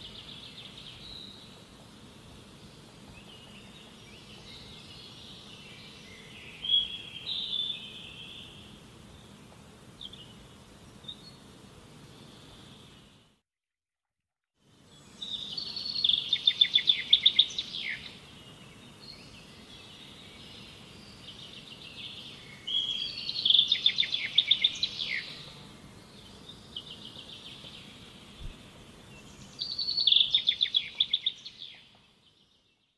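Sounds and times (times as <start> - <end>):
faint bird twittering: 14.9 - 32.9.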